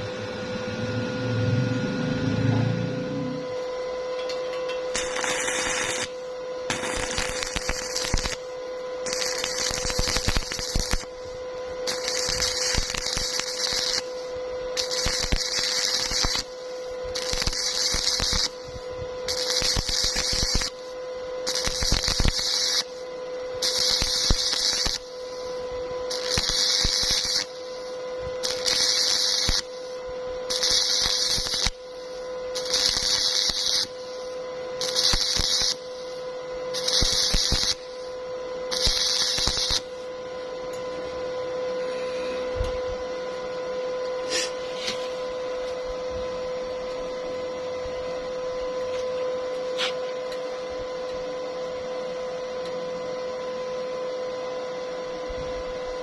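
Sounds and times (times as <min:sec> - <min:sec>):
steady hum: 0:00.0 - 0:56.0
arc welding crackling and hissing: 0:03.3 - 0:52.3.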